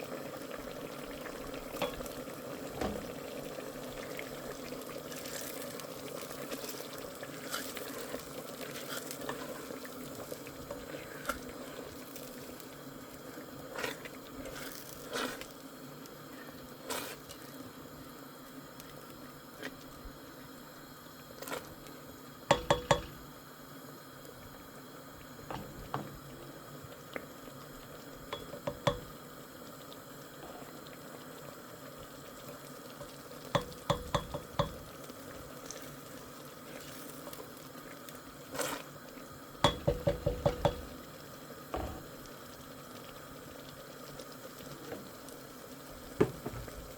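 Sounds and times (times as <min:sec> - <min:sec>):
utensil clinking against pot: 0:22.5 - 0:23.1.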